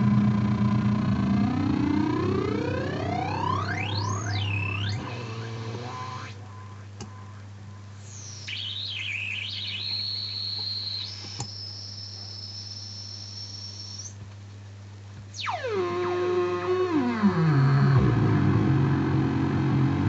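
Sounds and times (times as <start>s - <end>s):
buzzy tone swooping down: 0.0s - 7.3s, 15.4s - 20.0s
steady low hum: 0.0s - 20.0s
high whistling oscillator tone: 1.1s - 7.4s, 8.0s - 14.2s, 15.3s - 18.0s.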